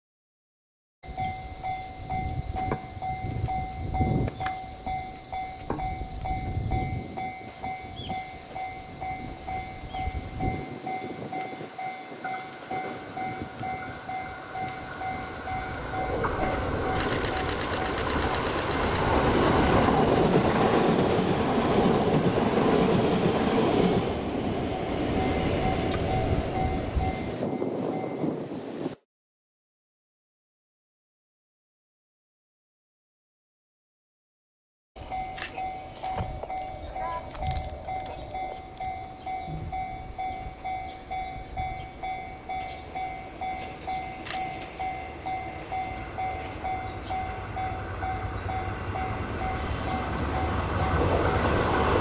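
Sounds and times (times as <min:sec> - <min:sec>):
repeating ringing signal: 0:01.1 - 0:19.0
electric train passing: 0:01.1 - 0:29.0, 0:35.0 - 0:52.0
wheels clacking over rail joints: 0:12.2 - 0:26.2.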